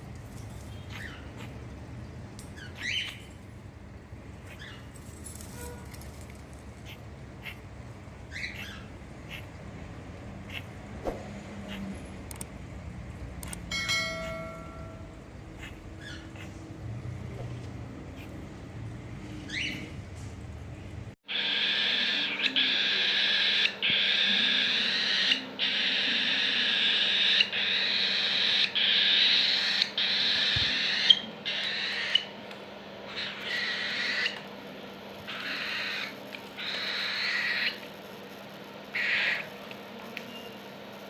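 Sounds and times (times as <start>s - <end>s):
cockatiel harsh raspy calls: 6.8s - 7.7s, 8.3s - 9.6s, 15.6s - 16.6s, 21.3s - 32.3s, 33.1s - 34.5s, 35.2s - 37.9s, 38.9s - 39.6s.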